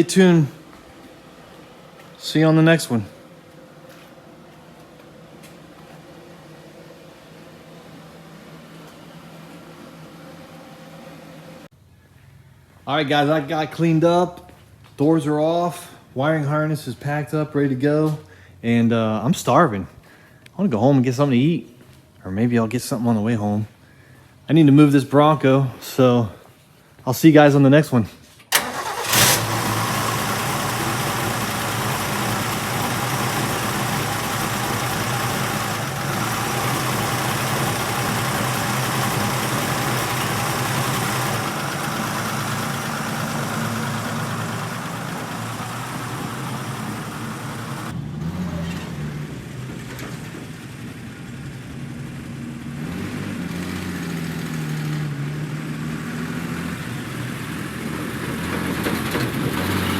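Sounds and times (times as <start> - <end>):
truck engine idling: 28.6 - 48.2.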